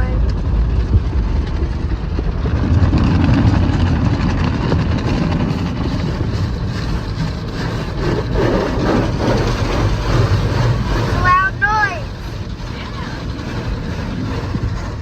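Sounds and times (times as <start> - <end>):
car wash dryer blowers: 0.0 - 15.0
low rumble: 0.0 - 15.0.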